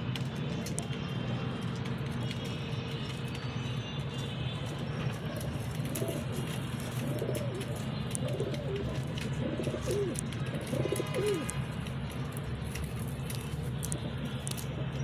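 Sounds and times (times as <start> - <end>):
pigeon cooing: 5.1 - 11.6.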